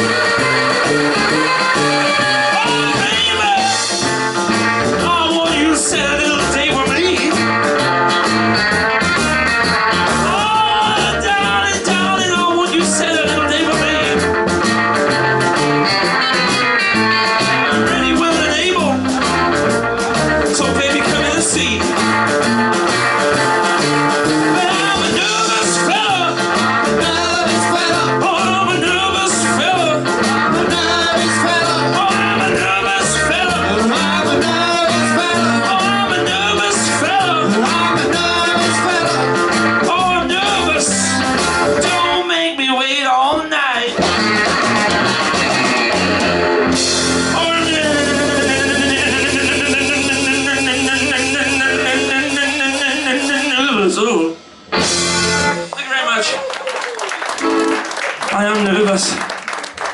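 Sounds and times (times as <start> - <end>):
guitar lines bending in pitch: 0.0 - 5.2, 13.1 - 42.0
steady drum beat: 0.0 - 42.1, 44.0 - 53.6
stepping bass line: 0.0 - 42.2, 44.0 - 53.7
rock and roll band playing live: 0.0 - 59.9.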